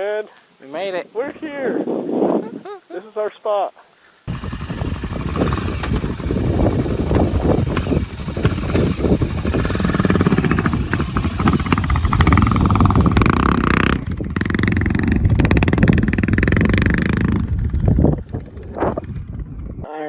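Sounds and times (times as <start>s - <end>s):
motorcycle engine running: 4.3s - 19.8s.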